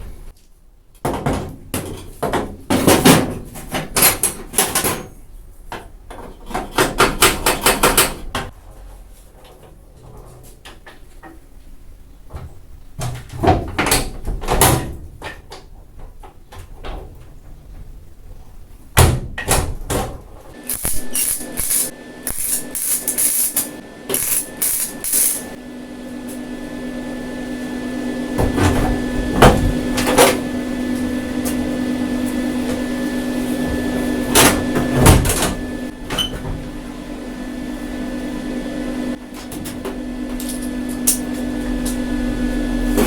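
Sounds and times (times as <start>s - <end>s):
small motor humming: 20.6s - 25.6s.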